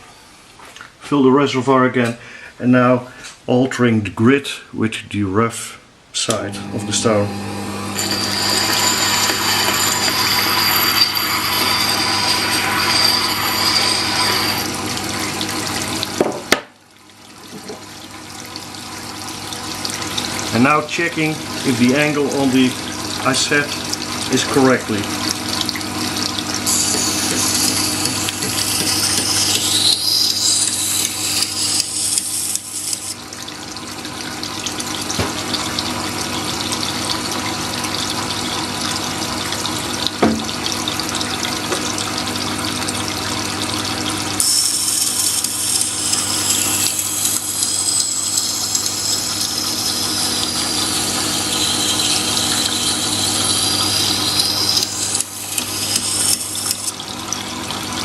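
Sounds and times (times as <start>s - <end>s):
sharpening machine motor humming: 6.5s - 16.2s, 25.4s - 33.2s, 44.4s - 57.0s
knife grinding on wet stone: 8.0s - 15.0s, 26.6s - 33.2s, 44.4s - 57.0s.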